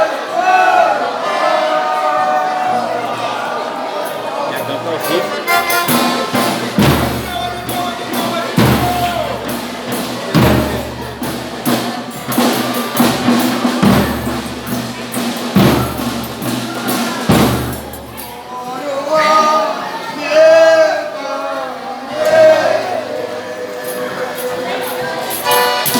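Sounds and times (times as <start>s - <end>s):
voices singing: 0.0s - 25.9s
folk band playing: 2.5s - 18.5s, 22.2s - 25.9s
deep drum beats: 5.3s - 18.4s.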